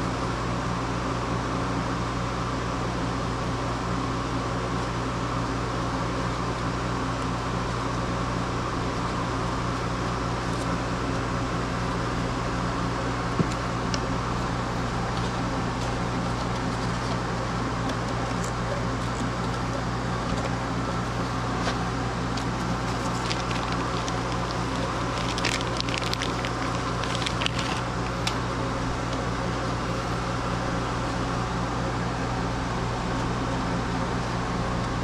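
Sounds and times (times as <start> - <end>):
low mechanical hum: 0.0 - 35.0
small clicks and rattles: 22.4 - 28.4.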